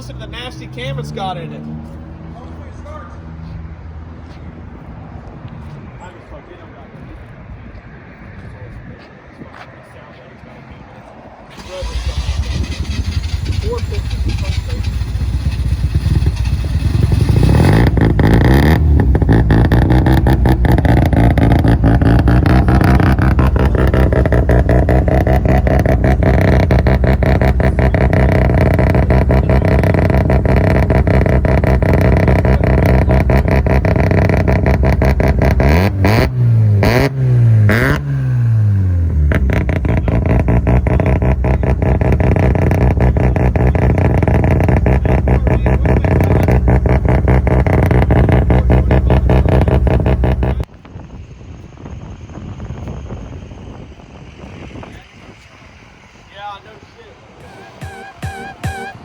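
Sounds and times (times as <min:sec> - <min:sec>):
car engine accelerating hard: 0:11.5 - 0:50.7.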